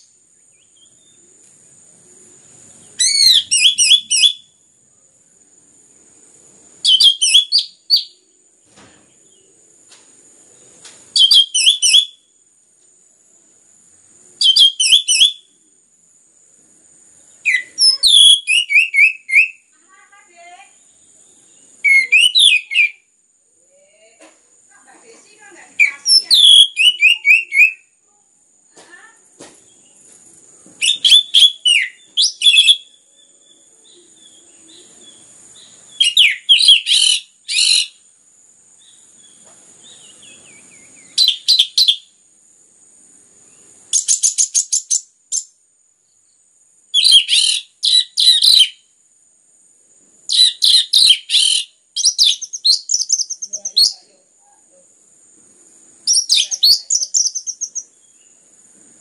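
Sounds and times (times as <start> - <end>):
thrush singing rapid chirps: 25.7 - 27.8, 43.6 - 45.6, 50.3 - 54.1, 56.0 - 58.2.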